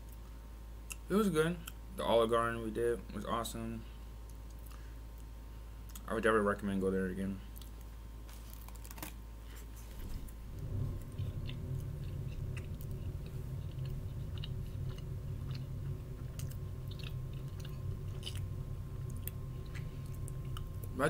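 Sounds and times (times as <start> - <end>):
chewing a sandwich: 7.5 - 10.3.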